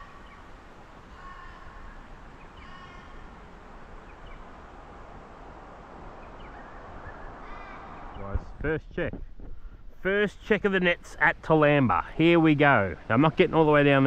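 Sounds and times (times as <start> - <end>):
bird calling: 0.0 - 4.8, 6.1 - 8.5
outdoor background hiss: 0.0 - 14.0.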